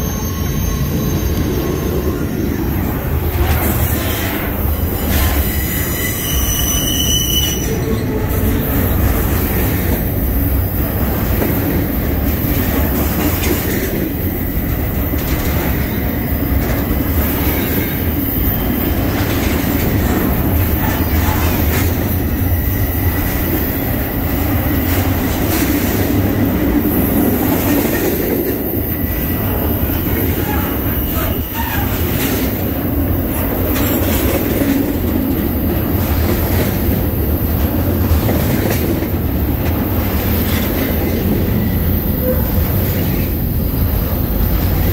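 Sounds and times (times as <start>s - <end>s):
faint wheel squeal: 0.0s - 3.0s, 5.1s - 8.2s
train wheels rumbling on rail: 0.0s - 44.9s.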